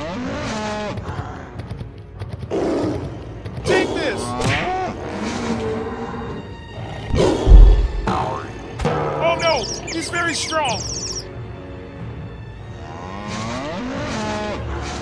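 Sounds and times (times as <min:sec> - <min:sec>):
background music: 0:00.7 - 0:15.0
cartoon animal roars and grunts: 0:03.7 - 0:08.2
heavy thud: 0:07.1 - 0:08.2.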